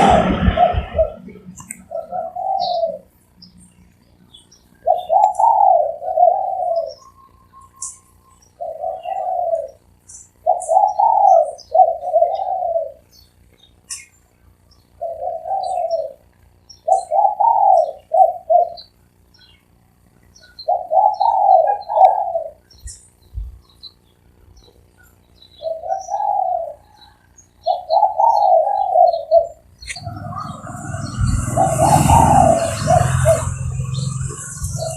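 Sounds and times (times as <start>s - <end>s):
dove cooing: 0.0s - 3.2s, 4.8s - 13.1s, 15.0s - 18.9s, 20.5s - 23.0s, 25.6s - 34.9s
small birds chirping: 0.0s - 34.9s.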